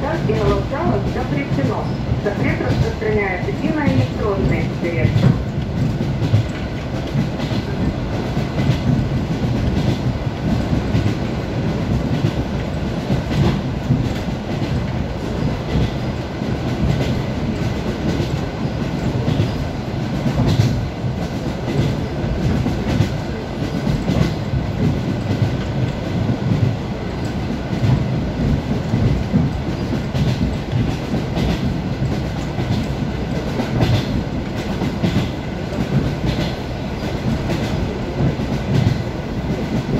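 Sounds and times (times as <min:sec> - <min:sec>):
train rumble: 0:00.0 - 0:39.9.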